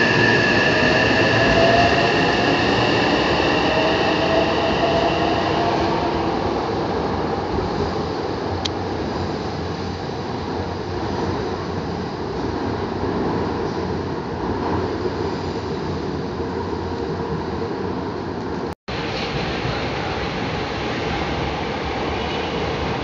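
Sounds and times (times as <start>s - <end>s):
electric train whine: 0.0s - 8.8s
train rumble on tracks: 0.0s - 23.0s.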